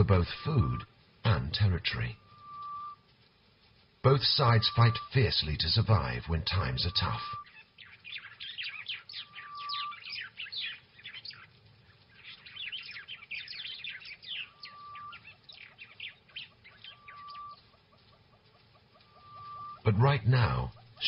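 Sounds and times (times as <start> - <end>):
birds chirping: 0.0 - 21.0
short steady whistle: 2.2 - 3.0, 19.1 - 19.8.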